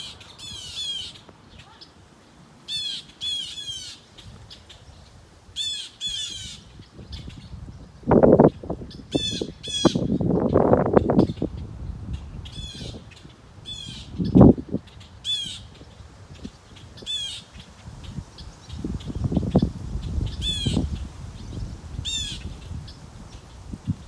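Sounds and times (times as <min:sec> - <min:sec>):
birds giving harsh calls: 0:00.0 - 0:02.0, 0:02.7 - 0:04.9, 0:05.6 - 0:07.4, 0:08.2 - 0:11.6, 0:12.4 - 0:24.0.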